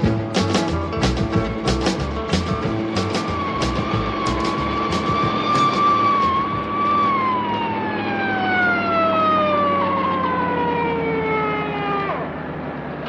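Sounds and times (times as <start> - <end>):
siren wailing: 2.6 - 13.0.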